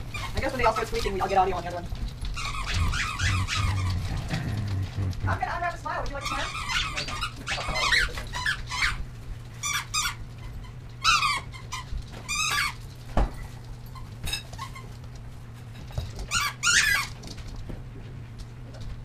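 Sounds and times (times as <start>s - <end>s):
animal squeaking: 0.0s - 1.4s, 2.3s - 5.4s, 6.1s - 12.8s, 16.3s - 17.2s.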